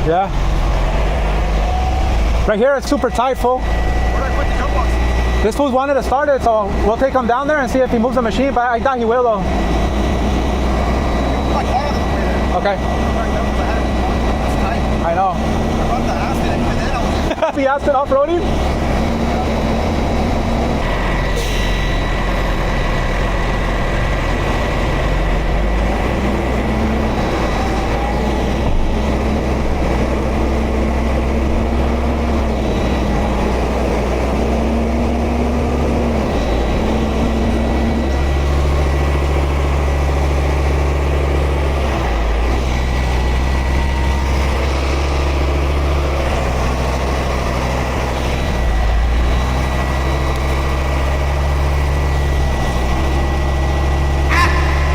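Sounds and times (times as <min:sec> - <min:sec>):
truck diesel engine running: 0:00.0 - 0:54.9
thin high whine: 0:20.8 - 0:23.0.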